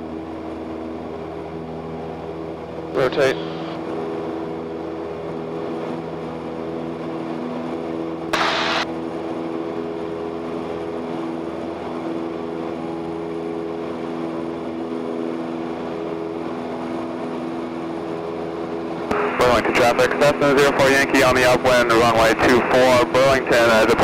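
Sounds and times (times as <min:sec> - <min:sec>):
aircraft engine and propeller: 0:00.0 - 0:24.0
loud burst of hiss: 0:08.4 - 0:08.8.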